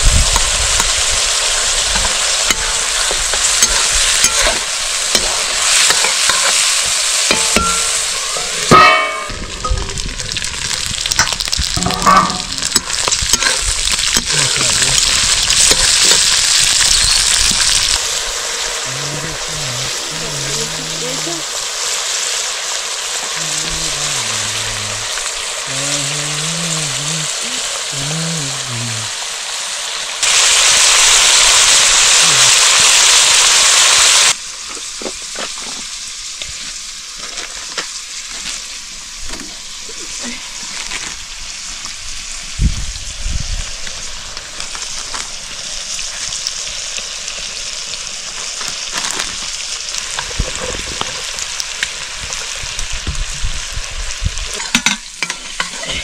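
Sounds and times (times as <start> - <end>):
curry sizzling in a pan: 0.0 - 56.0
loud steady hiss: 0.0 - 56.0
stirring scrapes and knocks: 54.6 - 56.0.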